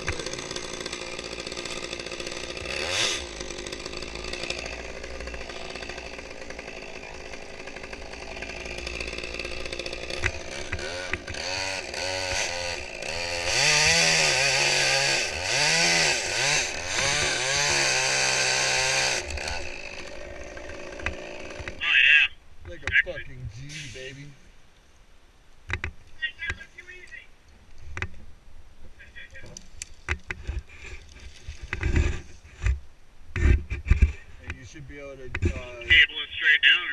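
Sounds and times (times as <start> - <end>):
chainsaw idling and revving: 0.0 - 21.8.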